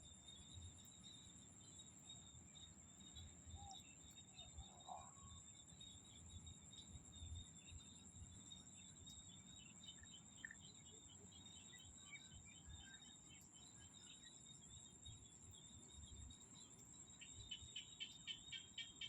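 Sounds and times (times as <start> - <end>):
insects trilling: 0.0 - 19.0
frogs calling: 17.4 - 19.0.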